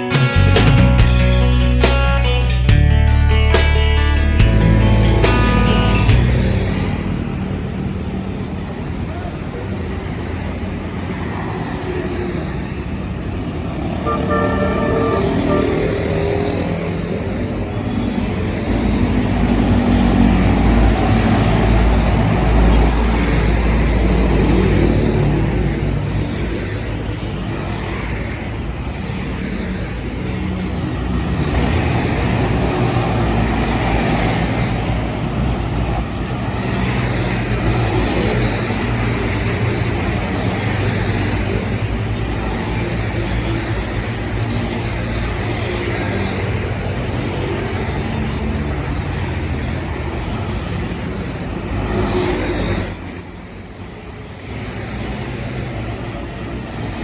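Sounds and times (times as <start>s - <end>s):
road traffic: 0.0s - 57.0s
tyre and road noise: 0.0s - 57.0s
diesel truck engine running: 3.5s - 11.2s.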